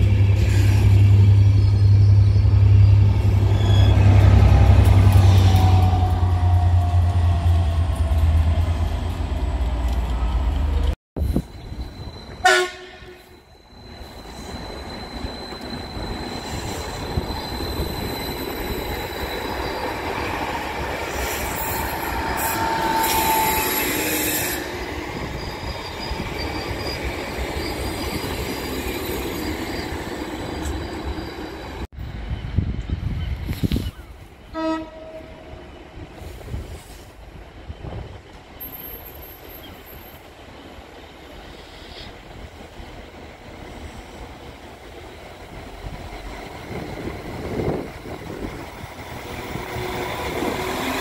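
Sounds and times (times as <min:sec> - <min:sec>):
high train squeal: 0:00.0 - 0:51.0
train rumbling: 0:00.0 - 0:51.0
train horn: 0:12.4 - 0:13.4, 0:34.5 - 0:35.6.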